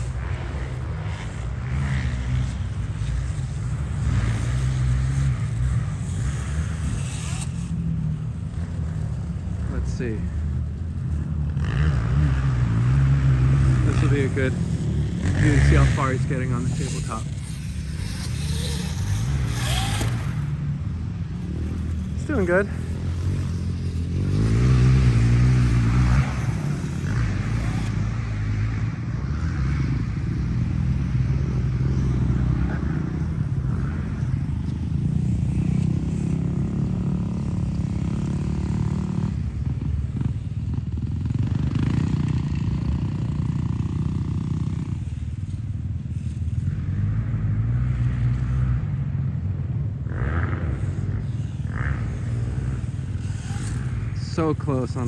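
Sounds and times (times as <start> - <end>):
electric dirt bike motor whirring: 0.0 - 9.0, 11.7 - 33.6, 50.8 - 55.0.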